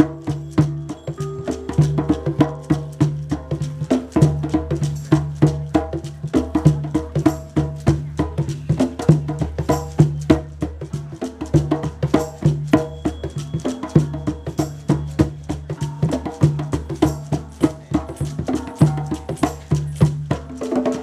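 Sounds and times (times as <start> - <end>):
recurring low tone: 0.0 - 4.0
pitched wooden strikes: 0.0 - 5.1.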